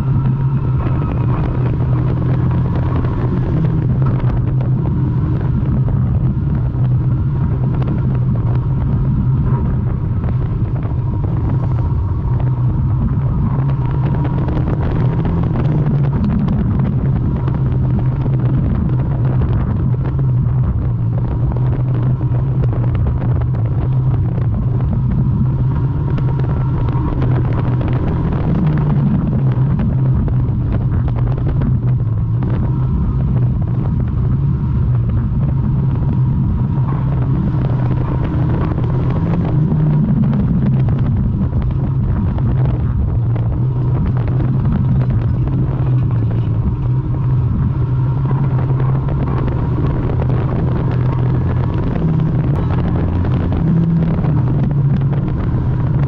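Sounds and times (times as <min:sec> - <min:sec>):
car engine running hard: 0:00.0 - 0:56.0.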